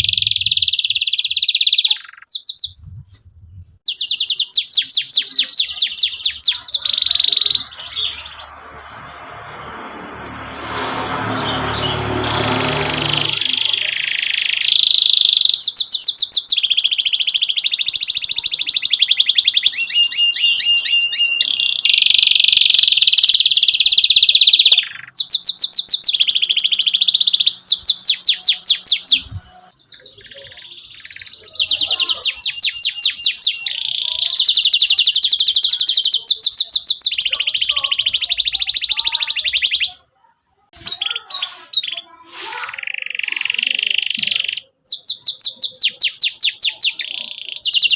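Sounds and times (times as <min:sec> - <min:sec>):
canary singing trills: 0:00.0 - 0:09.4, 0:10.7 - 0:47.9.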